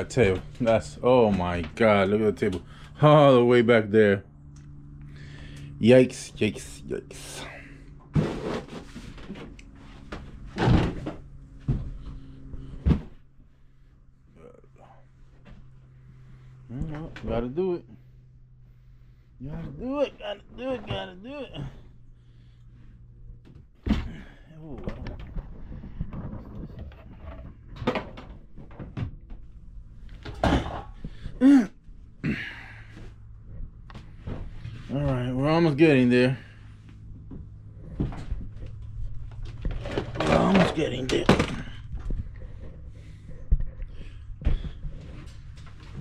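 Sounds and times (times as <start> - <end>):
items being shifted and dragged: 6.6 - 13.8, 24.8 - 31.4, 36.4 - 46.0.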